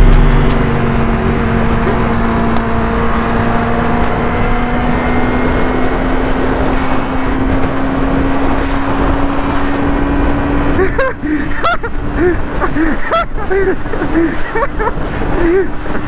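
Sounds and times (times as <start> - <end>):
sport bike engine running: 0.0 - 4.6.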